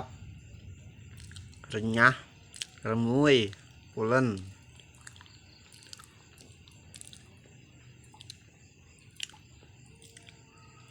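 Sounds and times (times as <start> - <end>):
chewing crisp food: 1.2 - 1.8, 2.5 - 2.9, 3.5 - 3.7, 4.3 - 10.9
mouth clicks: 4.4 - 7.3, 8.1 - 8.4.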